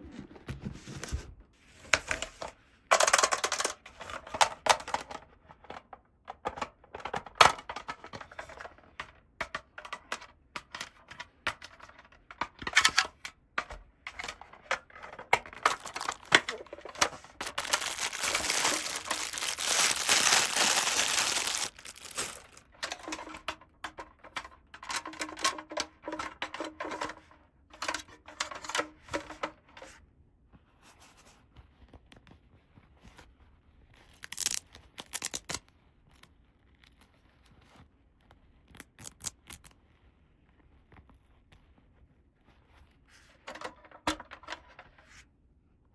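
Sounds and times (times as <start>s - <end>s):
plastic packaging crinkling: 15.0s - 23.4s, 34.2s - 35.6s
plastic toy pieces clicking: 15.4s - 23.5s, 34.2s - 35.6s
tearing rustle: 15.6s - 22.7s, 34.2s - 35.5s.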